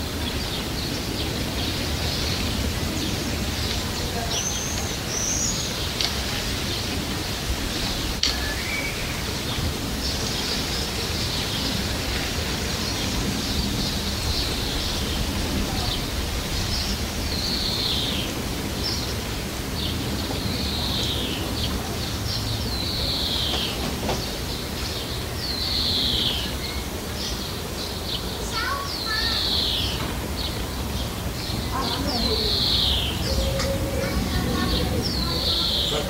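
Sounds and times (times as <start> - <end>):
steady low rumble: 0.0 - 25.7
songbirds calling: 0.0 - 36.0.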